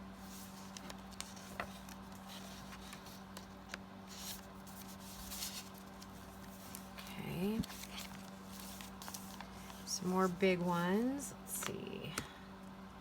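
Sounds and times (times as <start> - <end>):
faint low hum: 0.0 - 13.0
paper and card rustling: 0.1 - 12.3.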